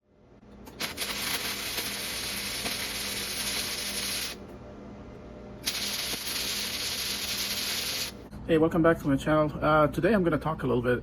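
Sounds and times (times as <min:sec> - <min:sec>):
welding arc crackling: 0:00.6 - 0:04.4, 0:05.6 - 0:08.2.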